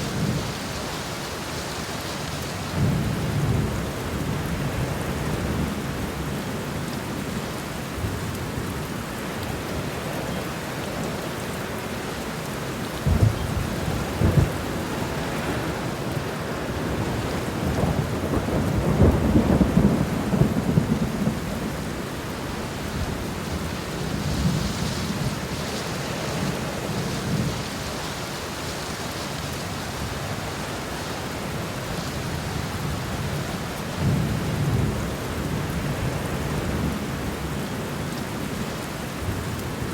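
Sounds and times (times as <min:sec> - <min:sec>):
steady rain falling: 0:00.0 - 0:39.9
thunder rumbling: 0:13.0 - 0:22.0.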